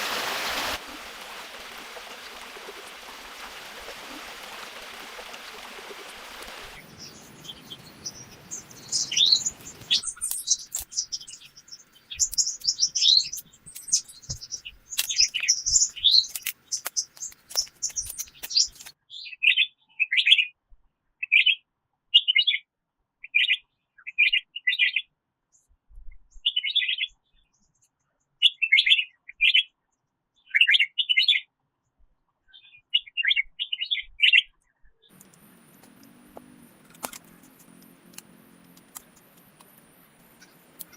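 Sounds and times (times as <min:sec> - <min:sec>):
songbirds chirping: 0:00.0 - 0:20.4, 0:32.5 - 0:40.9
sharp clicks: 0:12.2 - 0:19.0.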